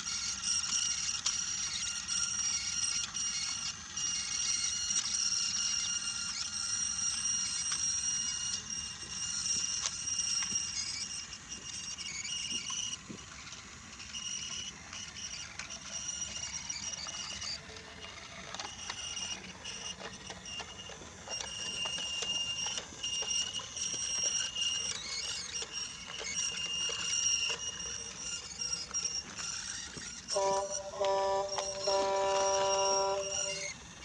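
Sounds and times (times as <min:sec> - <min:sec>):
toy train motor whine: 0:00.0 - 0:34.0
wheels clicking over track: 0:14.1 - 0:33.8.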